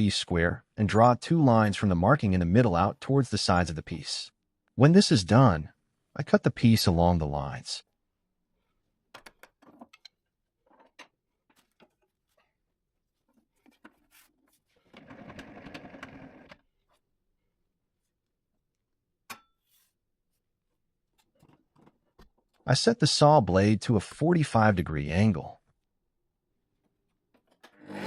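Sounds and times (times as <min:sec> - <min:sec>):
power saw cutting wood: 0:27.8 - 0:28.0.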